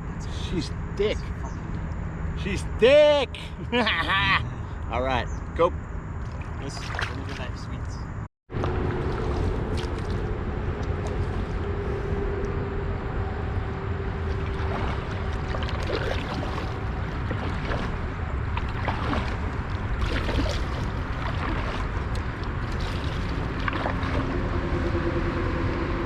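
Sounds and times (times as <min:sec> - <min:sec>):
wind and water rumbling on microphone: 0:05.8 - 0:26.0.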